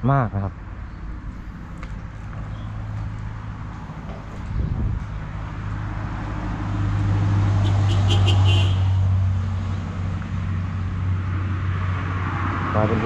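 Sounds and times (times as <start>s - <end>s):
vehicle passing: 0.6s - 13.0s
steady low rumble: 1.2s - 6.5s.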